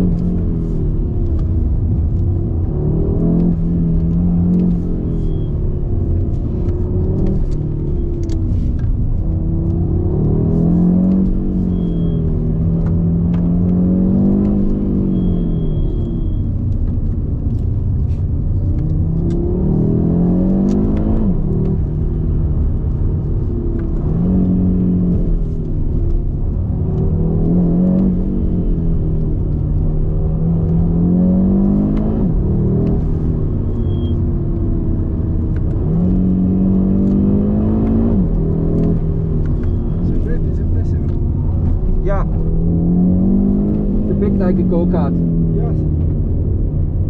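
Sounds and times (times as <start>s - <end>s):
car engine accelerating: 0.0s - 47.0s
road rumble: 0.0s - 47.0s.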